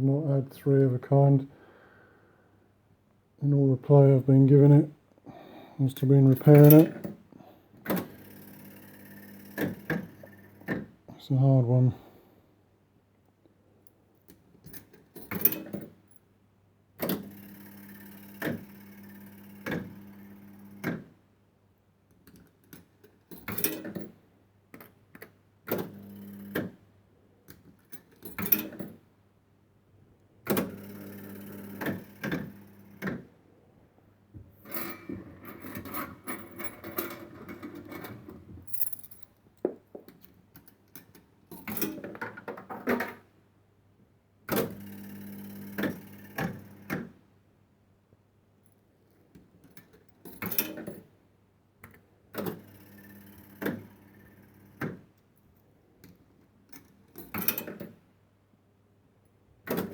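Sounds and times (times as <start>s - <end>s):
motor hum of spinning reels: 8.2s - 10.6s.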